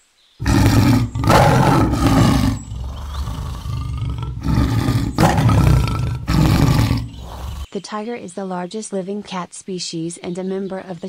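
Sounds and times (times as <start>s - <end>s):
tiger growling: 0.4s - 7.7s
tiger roaring: 0.4s - 7.7s.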